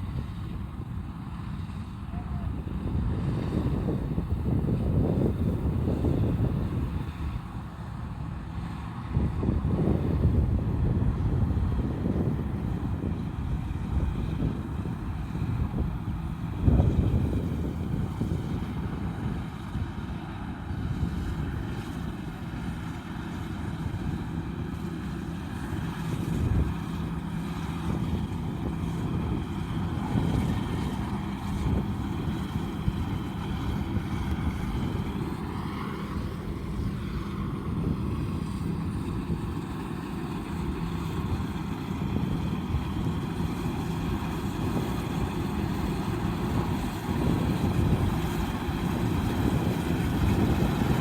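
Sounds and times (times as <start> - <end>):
wind on microphone: 0.0 - 22.8, 23.5 - 51.0
combine harvester running: 0.0 - 51.0.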